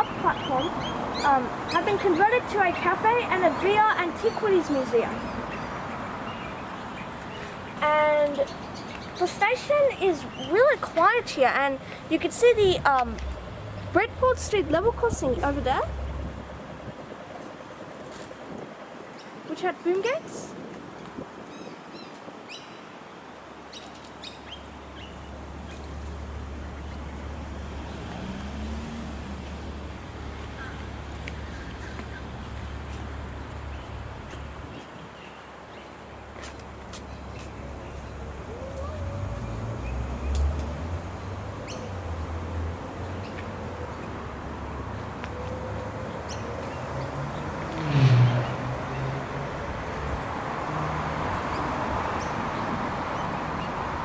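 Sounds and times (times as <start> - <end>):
small birds chirping: 0.0 - 16.3, 23.7 - 50.5
low traffic rumble: 0.0 - 21.4, 23.2 - 54.0.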